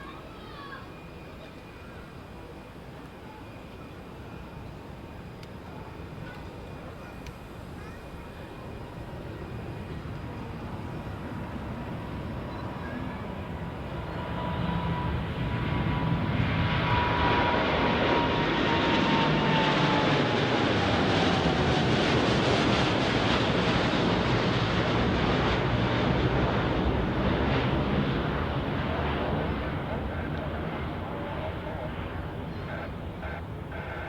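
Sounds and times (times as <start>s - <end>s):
jet engines at takeoff power: 0.1s - 34.0s.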